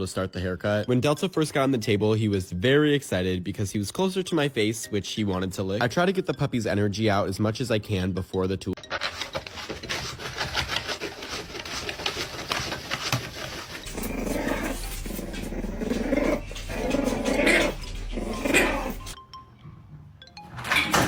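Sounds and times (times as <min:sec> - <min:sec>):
rustling and scratching: 0:08.8 - 0:19.2
puppy growling: 0:13.2 - 0:19.2.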